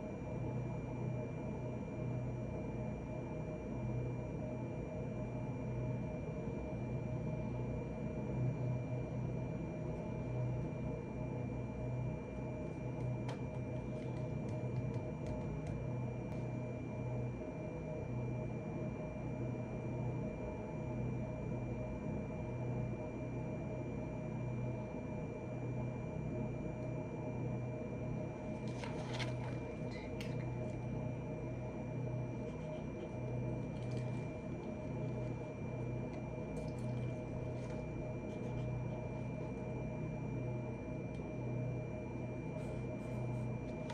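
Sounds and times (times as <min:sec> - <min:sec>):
low room hum: 0:00.0 - 0:43.9
faint high whine: 0:24.7 - 0:43.9
light clicks and rustles: 0:28.5 - 0:30.8, 0:32.4 - 0:35.4.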